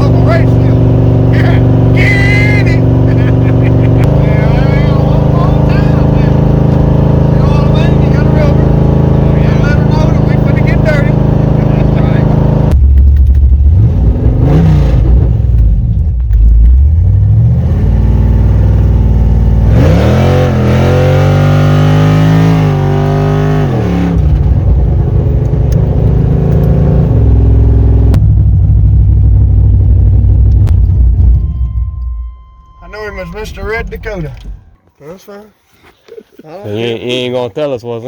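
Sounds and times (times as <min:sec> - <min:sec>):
engine revving: 0:00.0 - 0:34.8
engine idling: 0:27.4 - 0:34.9.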